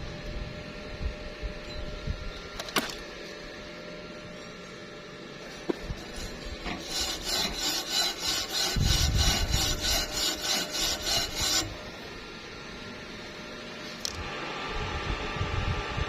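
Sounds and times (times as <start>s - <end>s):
hand tool scraping metal: 5.4s - 11.8s.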